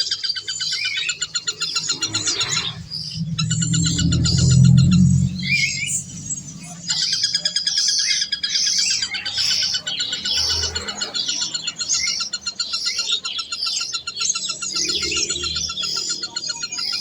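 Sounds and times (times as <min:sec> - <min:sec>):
birds chirping: 0:00.2 - 0:17.0
fast steady trill: 0:01.4 - 0:07.7.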